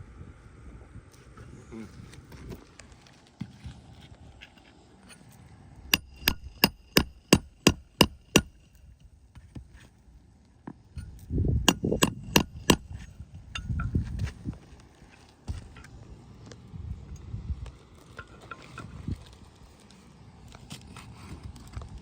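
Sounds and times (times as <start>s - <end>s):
hammer striking roofing nails: 6.0s - 8.7s, 11.6s - 13.1s.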